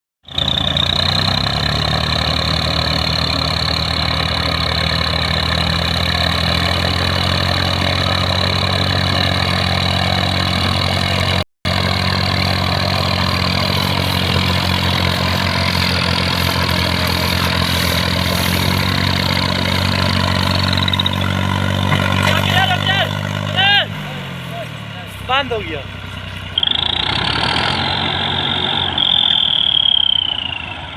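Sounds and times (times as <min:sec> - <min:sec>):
tractor engine idling: 0:00.2 - 0:30.9
high whine: 0:26.4 - 0:30.9.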